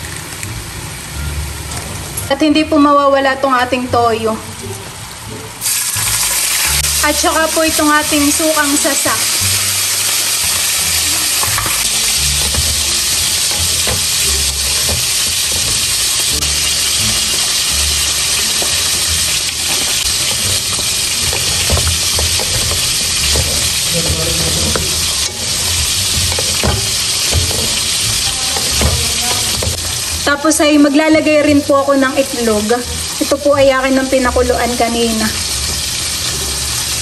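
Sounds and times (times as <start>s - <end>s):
chicken sizzling in a wok: 4.9s - 37.0s
wooden spatulas scraping a pan: 9.2s - 30.2s.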